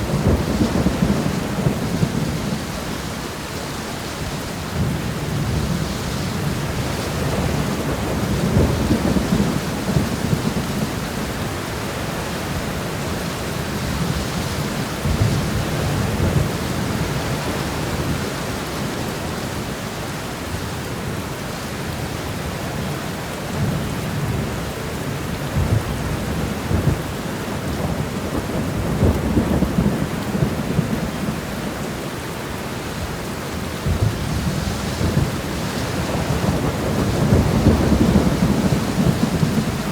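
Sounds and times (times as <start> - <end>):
low thunder rumbling: 0.0 - 3.6, 4.6 - 18.9, 23.6 - 39.9
rain hissing: 28.2 - 39.9.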